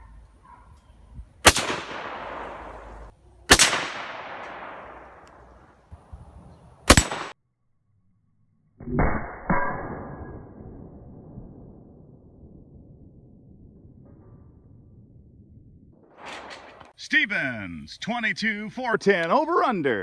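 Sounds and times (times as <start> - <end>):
rifle shots echoing: 1.4 - 5.7, 6.9 - 7.4, 16.2 - 16.9
muffled boom: 9.0 - 16.9.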